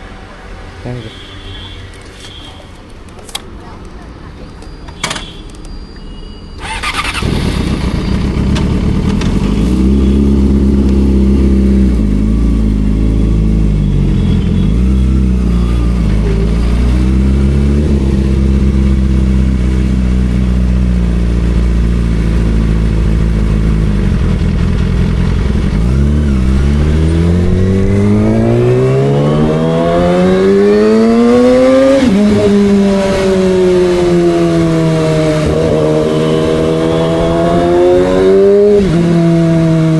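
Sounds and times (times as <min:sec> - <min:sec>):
motorcycle engine starting: 0:06.6 - 0:13.8
motorcycle engine idling and accelerating: 0:06.6 - 0:39.9.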